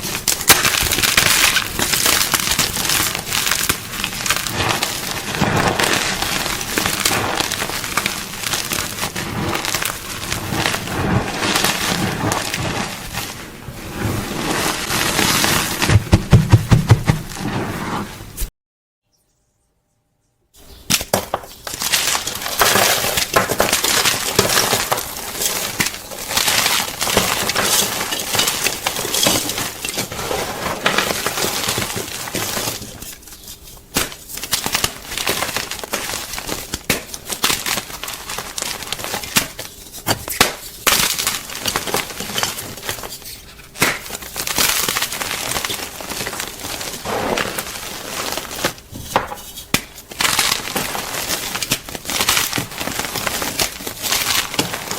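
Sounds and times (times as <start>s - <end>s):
chalk crunching: 2.6s - 18.2s, 37.9s - 54.9s.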